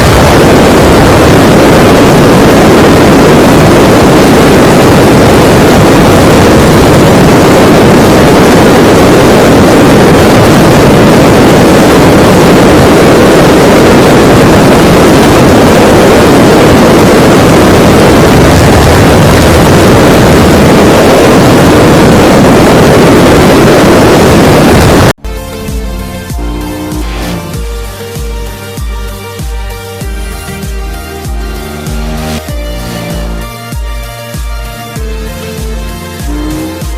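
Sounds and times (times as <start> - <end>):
wind noise: 0.0 - 28.2
motorcycle engine at high speed: 0.0 - 36.9.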